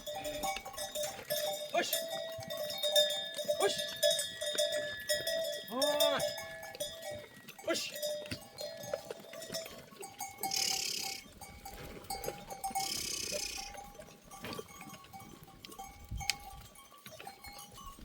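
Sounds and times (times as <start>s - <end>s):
animal bells clinking: 0.0s - 18.0s.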